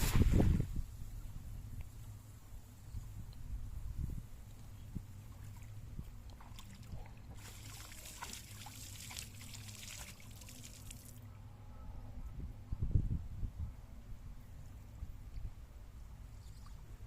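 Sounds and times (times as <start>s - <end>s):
water trickling and pattering: 4.4s - 11.3s.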